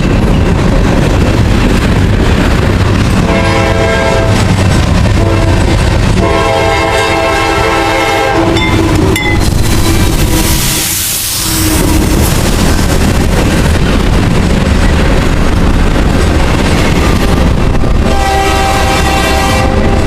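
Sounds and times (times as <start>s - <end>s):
rumble of passing freight train: 0.0s - 20.0s
locomotive horn blasts: 3.2s - 4.4s, 5.2s - 9.1s, 18.0s - 20.0s.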